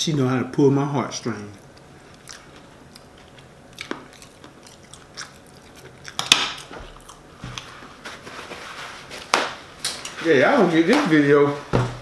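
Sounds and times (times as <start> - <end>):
person chewing food: 1.6 - 7.9.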